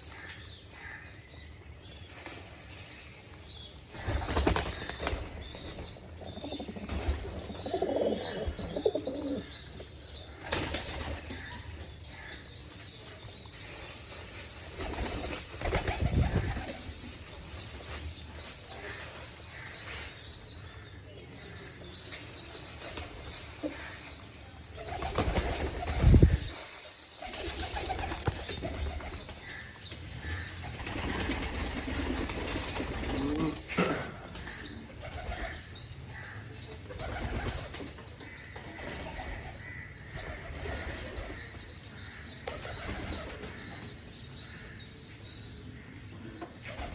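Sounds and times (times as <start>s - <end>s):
wings flapping: 4.0s - 5.8s, 14.7s - 16.9s, 24.9s - 26.6s, 30.7s - 33.4s
pigeons cooing: 6.2s - 9.6s, 27.3s - 37.8s.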